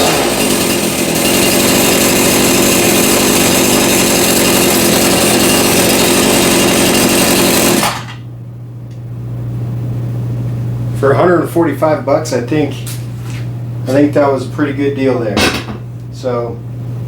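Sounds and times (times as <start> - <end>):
chainsaw running: 0.0 - 8.3
low steady hum: 8.2 - 17.0.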